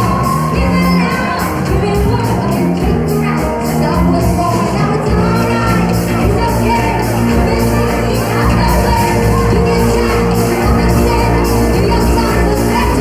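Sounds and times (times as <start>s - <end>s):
bass line: 0.0s - 13.0s
disco-funk band playing: 0.0s - 13.0s
person singing: 0.0s - 13.0s
drum beat: 5.0s - 13.0s.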